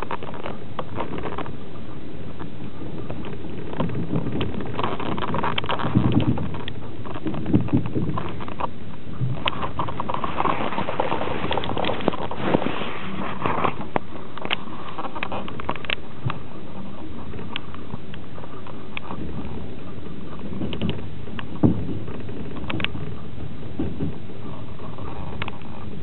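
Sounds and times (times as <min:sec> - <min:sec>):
clicks and rattles: 0:00.0 - 0:01.6, 0:03.0 - 0:19.6, 0:20.3 - 0:26.0
train wheels rumbling on rails: 0:02.4 - 0:26.0.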